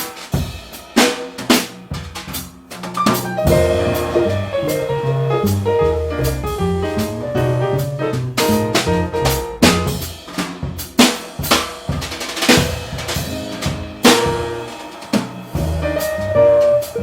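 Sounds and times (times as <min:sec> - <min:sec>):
drum kit: 0:00.0 - 0:17.0
jazz band playing: 0:01.0 - 0:17.0
held chords: 0:03.0 - 0:09.6
bass line: 0:03.2 - 0:09.9.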